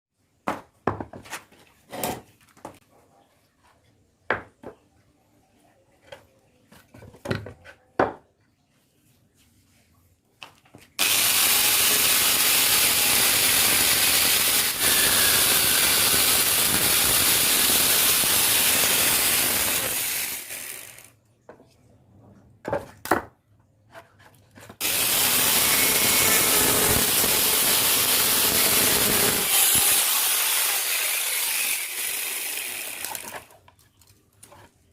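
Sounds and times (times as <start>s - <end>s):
wood and tools knocking: 0.4s - 1.4s, 4.3s - 4.9s, 6.1s - 8.3s
lathe tool shaving wood: 11.0s - 21.0s, 24.8s - 33.3s.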